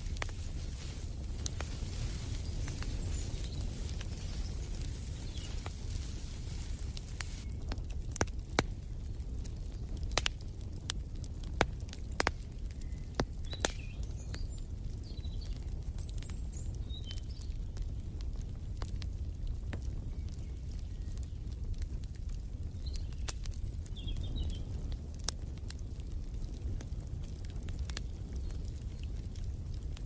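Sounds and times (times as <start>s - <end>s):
low rumble of flames: 0.0s - 30.0s
wood fire popping and snapping: 0.0s - 30.0s.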